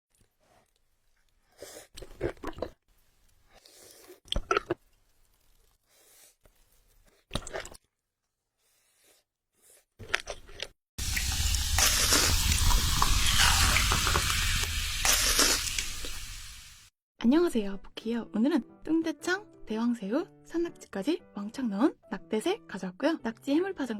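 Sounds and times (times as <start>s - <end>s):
chewing and crunching: 0.1s - 2.8s, 3.5s - 5.8s, 10.0s - 10.8s.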